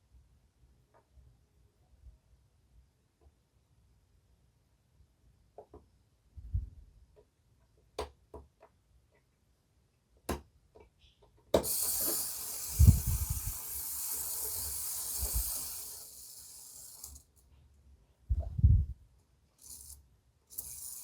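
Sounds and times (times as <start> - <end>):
model train motor hissing: 11.6 - 17.4, 19.6 - 21.0.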